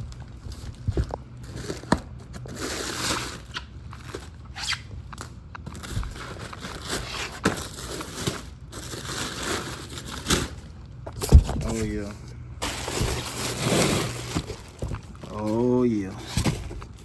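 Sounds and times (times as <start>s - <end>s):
packaging rustling and scraping: 0.1s - 17.0s.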